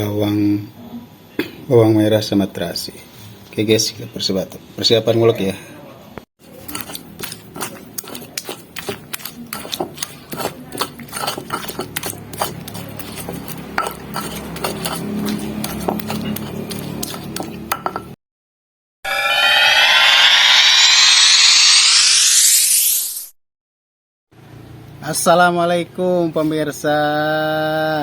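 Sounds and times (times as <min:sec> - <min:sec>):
pestle pounding in a mortar: 0:06.4 - 0:18.2.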